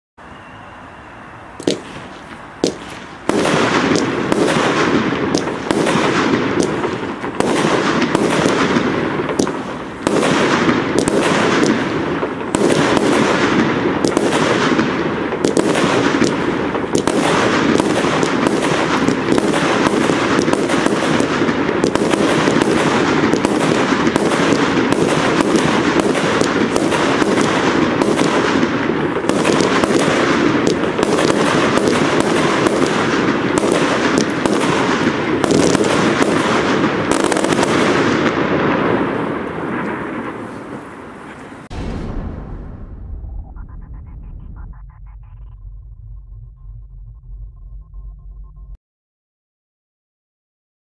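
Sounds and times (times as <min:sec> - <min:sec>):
firework pops: 0:01.6 - 0:04.6
firework hiss with rapid bangs: 0:01.6 - 0:40.9.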